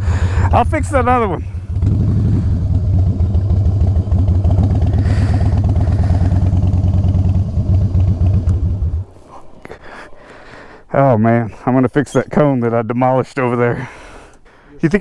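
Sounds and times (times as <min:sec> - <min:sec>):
motorcycle engine at low revs: 0:00.0 - 0:09.2.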